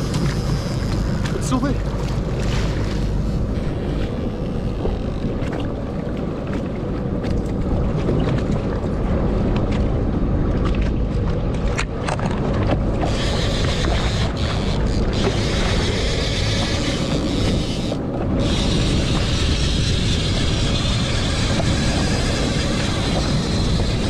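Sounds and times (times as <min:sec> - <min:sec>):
boat engine running: 0:00.0 - 0:24.0
water rushing past hull: 0:00.0 - 0:24.0
wind on microphone: 0:00.0 - 0:24.0.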